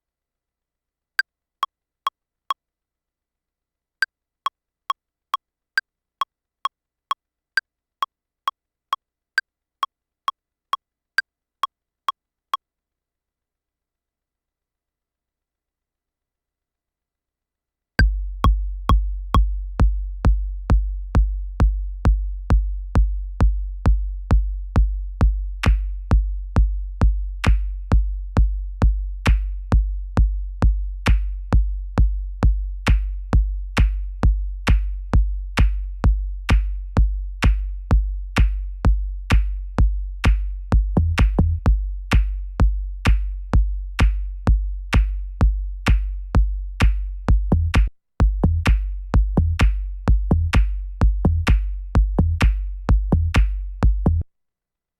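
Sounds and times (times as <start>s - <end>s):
looping kick drum: 18.0s - 54.2s.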